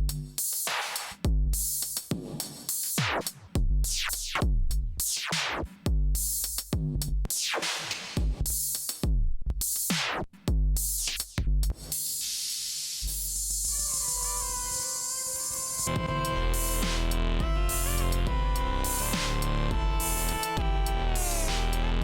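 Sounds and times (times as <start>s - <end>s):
electronic funk drum machine beat: 0.0s - 12.4s, 13.0s - 22.0s
falling synth sweeps: 13.7s - 22.0s.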